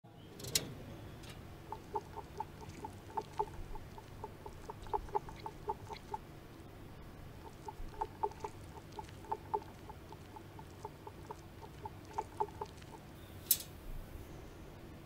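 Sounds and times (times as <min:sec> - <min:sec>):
bird clucking: 0:01.4 - 0:06.2, 0:07.3 - 0:13.1.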